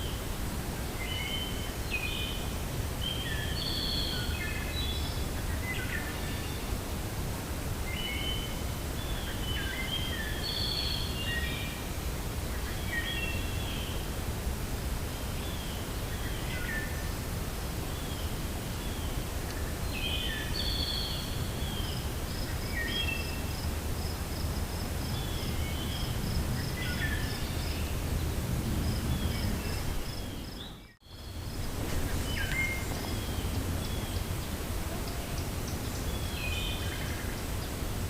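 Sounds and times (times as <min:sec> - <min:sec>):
wind blowing: 0:00.0 - 0:38.0
small birds chirping: 0:17.9 - 0:37.8.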